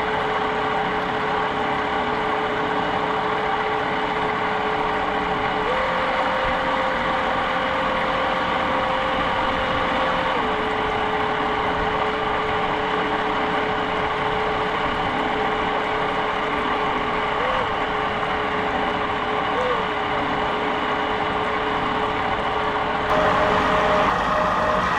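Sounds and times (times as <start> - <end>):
boat motor whining: 5.5 - 12.6, 15.9 - 24.9.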